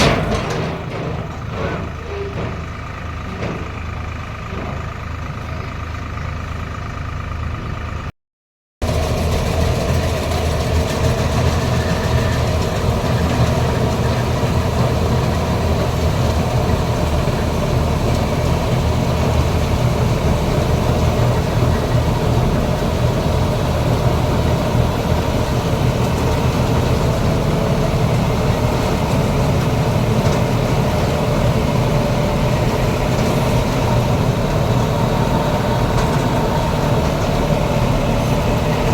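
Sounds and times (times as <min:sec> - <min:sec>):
combine harvester running: 0:00.0 - 0:08.1, 0:08.8 - 0:38.9.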